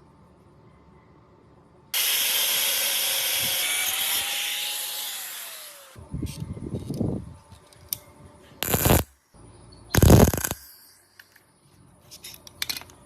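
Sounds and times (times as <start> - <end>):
power tool running and winding down: 2.0 - 6.0.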